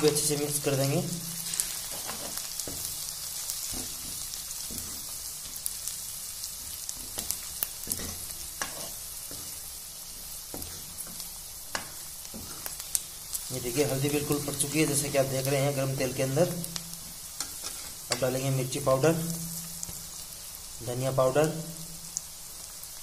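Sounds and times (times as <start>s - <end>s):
onions sizzling in hot oil: 0.0s - 23.0s
metal ladle scraping pan: 17.4s - 18.2s.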